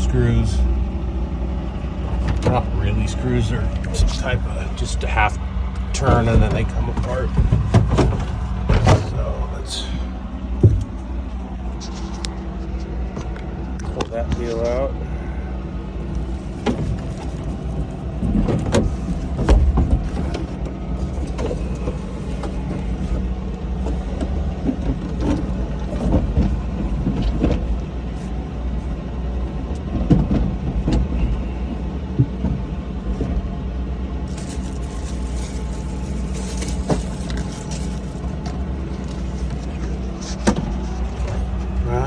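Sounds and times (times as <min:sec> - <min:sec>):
steady low hum: 0:00.0 - 0:42.0
plastic and metal knocks and scrapes: 0:05.8 - 0:09.3, 0:10.6 - 0:14.7, 0:16.1 - 0:28.4, 0:29.8 - 0:31.5, 0:34.2 - 0:41.8.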